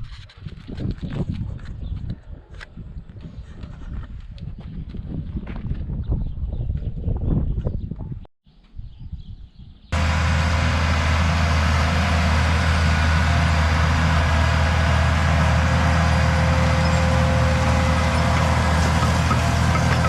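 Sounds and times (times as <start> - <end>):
tractor engine droning: 10.0 - 20.0.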